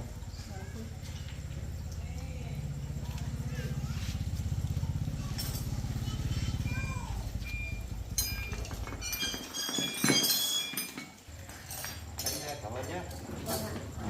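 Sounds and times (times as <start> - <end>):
motorcycle engine idling: 0.0 - 9.1
light metallic clinks: 4.5 - 6.6, 7.4 - 14.0.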